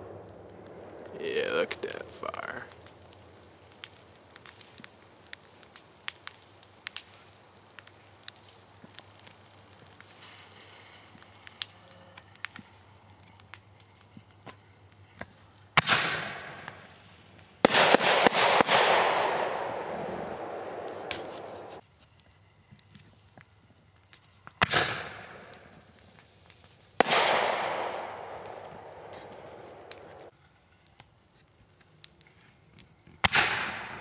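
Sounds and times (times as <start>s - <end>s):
fireworks cracking: 0.0s - 11.8s, 15.2s - 21.8s, 24.6s - 30.3s
hissing crackle: 0.0s - 23.4s, 24.1s - 32.6s
firework bang: 15.8s - 16.8s, 17.6s - 21.8s, 27.0s - 30.3s.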